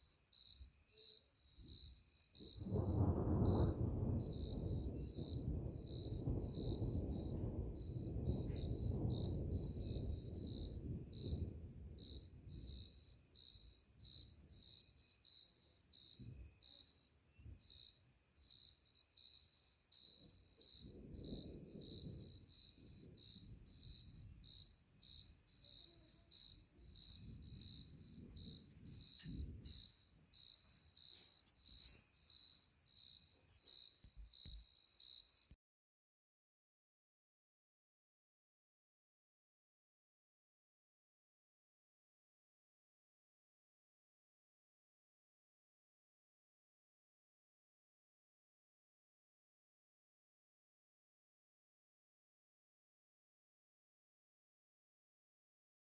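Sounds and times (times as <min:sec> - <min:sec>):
cricket chirping: 0:00.0 - 0:35.6
distant thunder rumbling: 0:01.6 - 0:15.0, 0:19.9 - 0:34.6.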